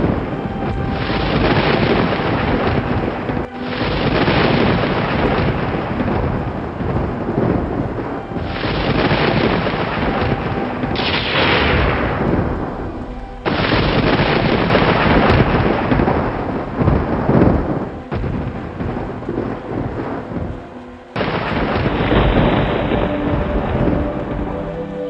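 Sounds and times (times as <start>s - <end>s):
loud thunder claps: 0.0s - 25.0s
steady rain: 0.0s - 25.0s
thunder rumbling: 0.0s - 25.0s.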